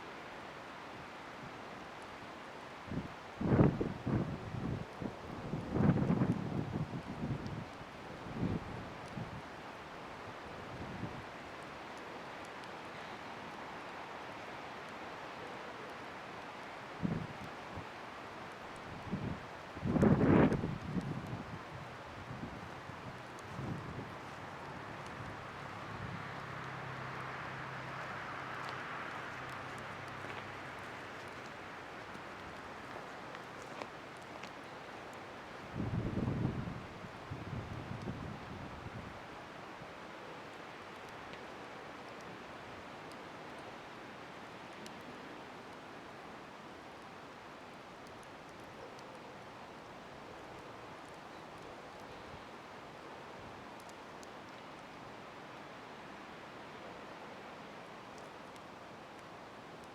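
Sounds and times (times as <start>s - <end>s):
faint fire crackles: 0.0s - 59.9s
bonfire hissing: 0.4s - 36.0s
fire and wind rushing: 2.8s - 15.2s, 16.6s - 48.7s.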